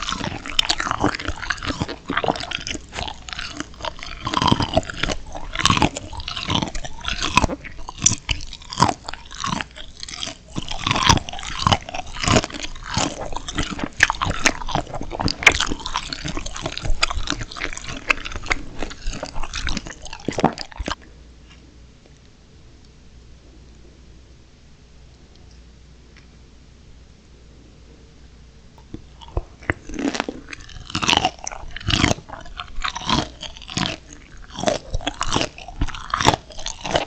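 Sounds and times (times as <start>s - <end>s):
crunchy chewing of shrimp: 0.0s - 21.6s, 28.8s - 37.0s.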